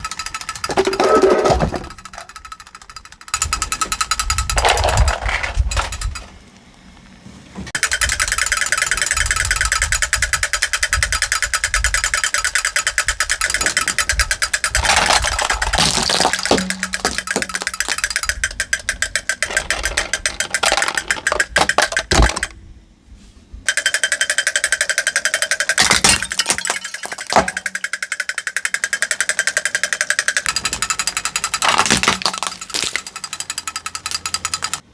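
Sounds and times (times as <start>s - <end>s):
plastic toys crunching under car: 4.2s - 7.0s, 13.5s - 18.3s, 19.4s - 22.6s, 31.6s - 33.2s.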